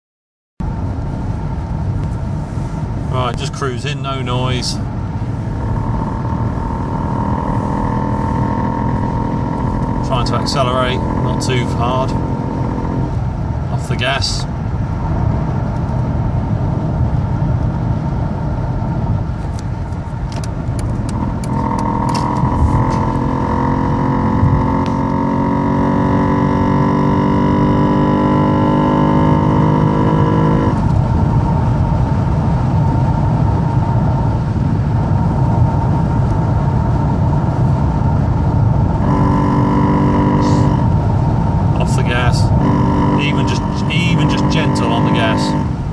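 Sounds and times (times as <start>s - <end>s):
car engine accelerating: 0.6s - 45.9s
road noise inside car: 0.6s - 45.9s
sharp rattling clicks: 20.3s - 22.5s.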